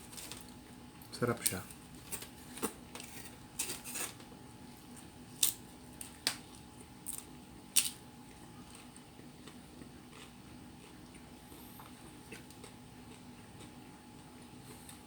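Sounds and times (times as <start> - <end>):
person chewing: 7.0 - 15.0.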